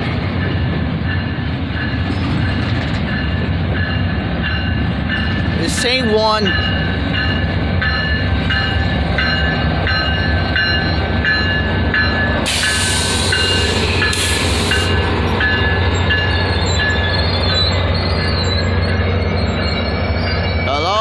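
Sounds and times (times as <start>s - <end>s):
slow train rumbling: 0.0s - 21.0s
burst of hiss: 12.5s - 15.1s.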